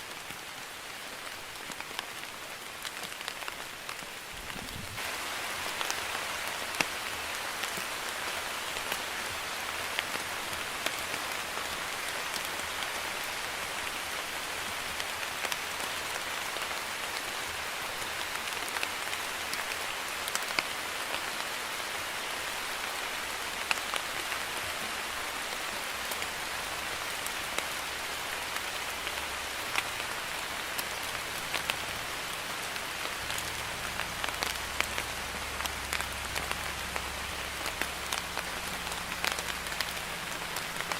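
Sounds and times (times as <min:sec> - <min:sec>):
light rain falling: 0:00.0 - 0:40.9.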